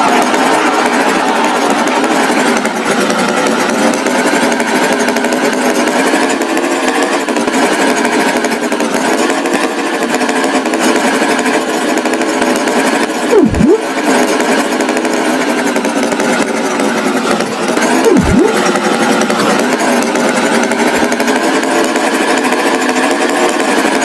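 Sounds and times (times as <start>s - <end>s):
cartoon tractor engine running: 13.4s - 13.8s, 18.1s - 18.7s
swooping tone: 13.4s - 13.8s, 18.1s - 18.7s.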